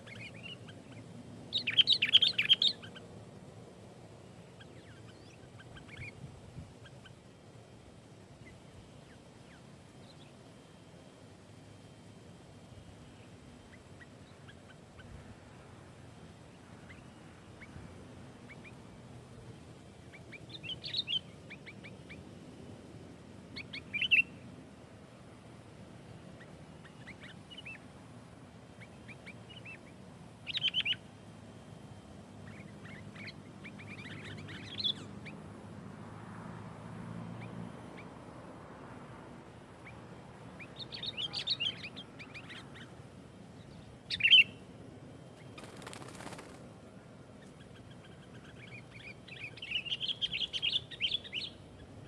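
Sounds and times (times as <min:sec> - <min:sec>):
bird chattering chirps: 0:00.0 - 0:03.0.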